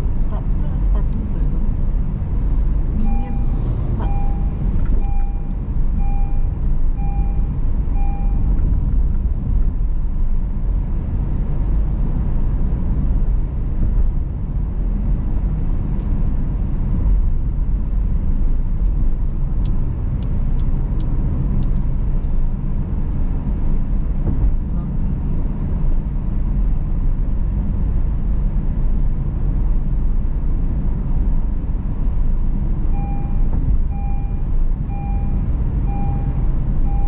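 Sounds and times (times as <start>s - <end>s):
car rumbling over rough road: 0.0s - 37.0s
pitched beep: 3.0s - 8.6s, 32.9s - 37.0s.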